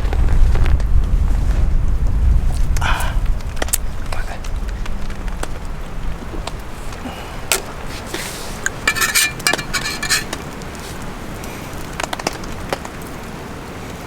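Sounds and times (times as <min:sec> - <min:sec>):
small hard items clinking: 0:08.8 - 0:10.3.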